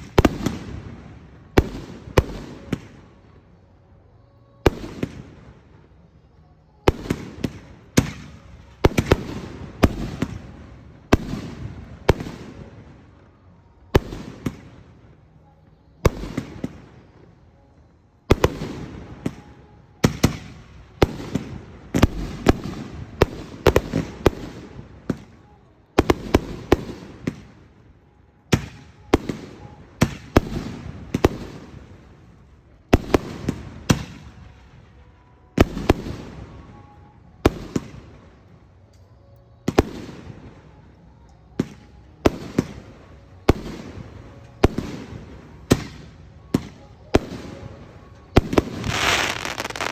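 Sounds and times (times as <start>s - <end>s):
firework shells bursting: 48.5s - 49.9s.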